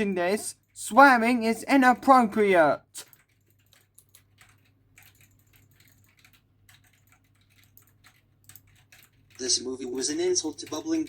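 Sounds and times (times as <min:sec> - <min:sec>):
soft keyboard typing: 0:03.0 - 0:11.0.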